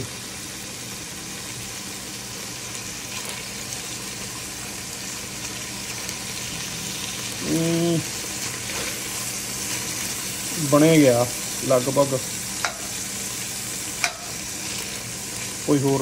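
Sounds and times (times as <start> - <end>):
chicken sizzling in oil: 0.0 - 16.0
person humming: 7.4 - 8.1
metal spatula turning food: 8.4 - 10.2, 12.6 - 13.0, 14.0 - 15.1.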